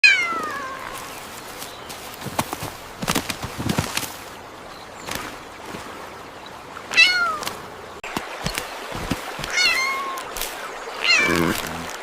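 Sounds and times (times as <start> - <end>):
cat meowing: 9.5 - 10.2, 11.0 - 11.6.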